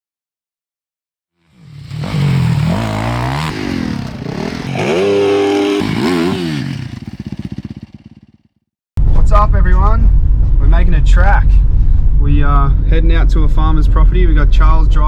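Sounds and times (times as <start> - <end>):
motocross bike engine revving: 1.4 - 8.4.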